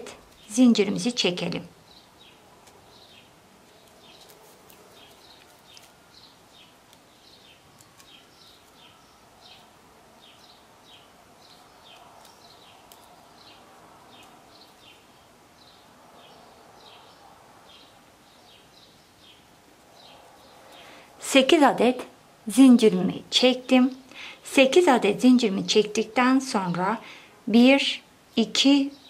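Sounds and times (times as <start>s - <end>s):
bird chirping: 0.0s - 21.5s.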